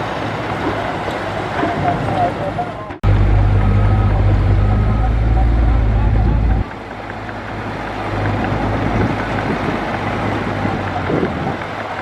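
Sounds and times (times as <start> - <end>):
heavy machinery engine running: 2.9 - 12.0.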